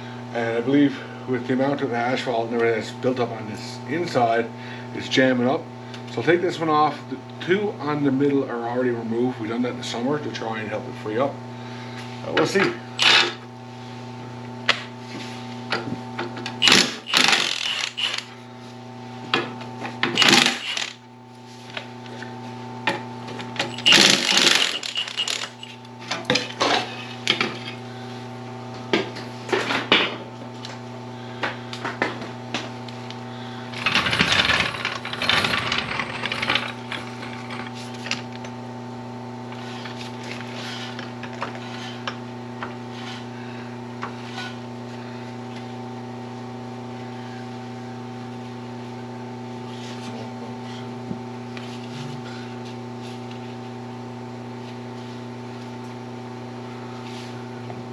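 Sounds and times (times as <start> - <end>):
metal tools clanking: 16.6 - 18.3, 20.2 - 21.0, 23.6 - 25.8, 33.8 - 38.2
steady hum: 16.6 - 18.7, 20.0 - 21.2, 23.6 - 25.9.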